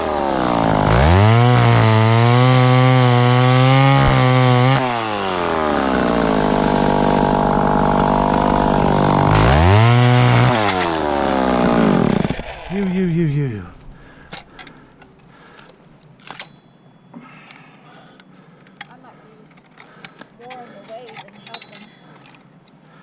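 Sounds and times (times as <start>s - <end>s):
chainsaw revving: 0.0s - 14.3s.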